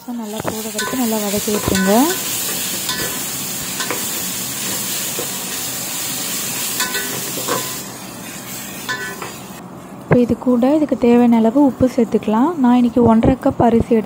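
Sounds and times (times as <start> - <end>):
food sizzling in oil: 0.0 - 9.6
metal spoon scraping a pot: 8.8 - 9.5.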